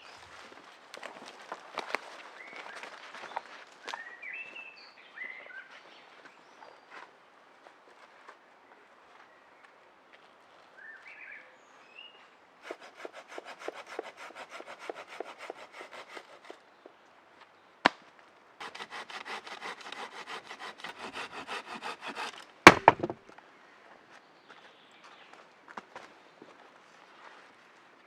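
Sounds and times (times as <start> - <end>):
hand saw cutting wood: 12.6 - 16.6, 18.6 - 23.2
wood cracking: 18.6 - 23.3.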